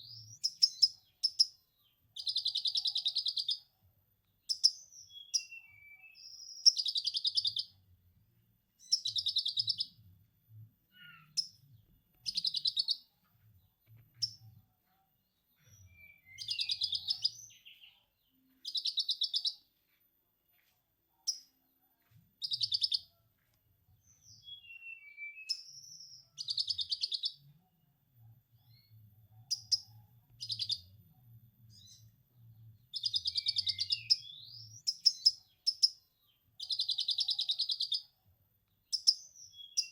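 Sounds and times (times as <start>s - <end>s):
thin bird whistles: 15.8s - 17.3s, 24.4s - 27.1s.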